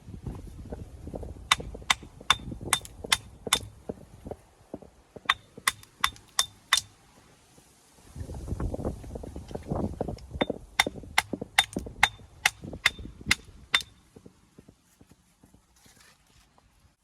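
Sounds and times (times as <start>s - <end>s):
hammer striking stone: 1.5s - 3.8s, 5.2s - 6.9s, 10.4s - 14.0s.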